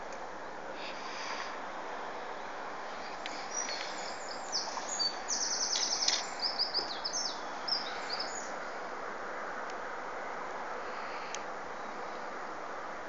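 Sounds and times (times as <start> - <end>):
steady background hiss: 0.0 - 13.0
songbird singing with trill: 3.0 - 8.6.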